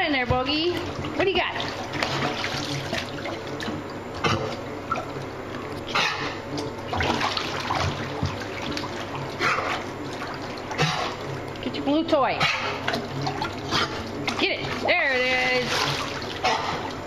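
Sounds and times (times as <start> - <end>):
running and trickling water: 0.5 - 5.9, 6.5 - 17.0
dog splashing in water: 1.4 - 4.6, 6.9 - 11.4.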